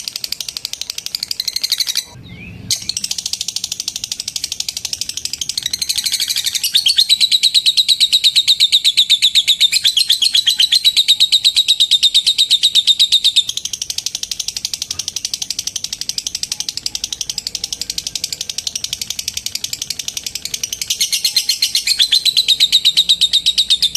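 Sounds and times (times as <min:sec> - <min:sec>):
lovebird chattering trill: 0:00.0 - 0:23.9.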